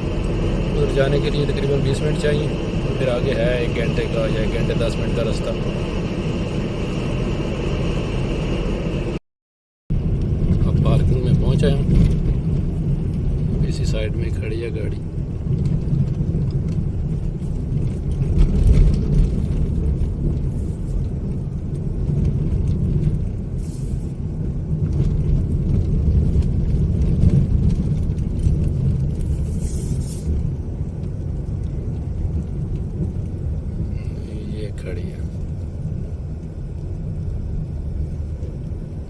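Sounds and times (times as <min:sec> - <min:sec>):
car engine and road rumble: 0:00.0 - 0:09.2, 0:09.9 - 0:39.0.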